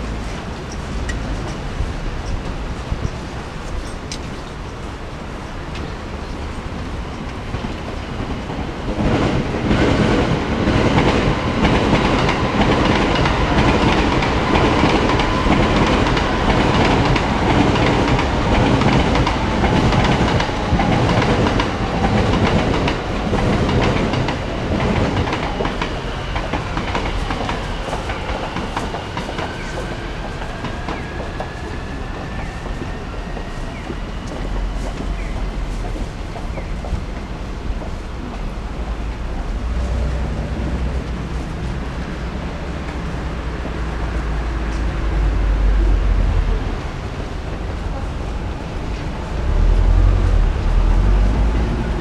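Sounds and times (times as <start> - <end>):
train passing: 0.0 - 52.0.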